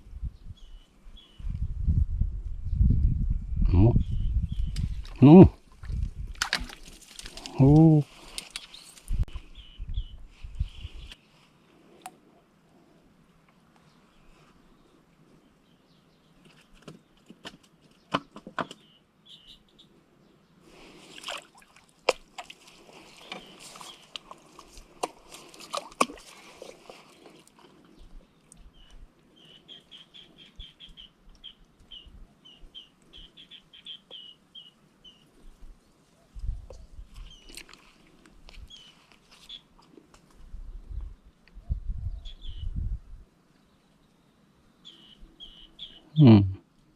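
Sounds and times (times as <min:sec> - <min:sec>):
bird chirping: 0:08.5 - 0:11.2, 0:18.0 - 0:20.6, 0:27.9 - 0:35.5, 0:40.7 - 0:42.8, 0:43.6 - 0:46.6.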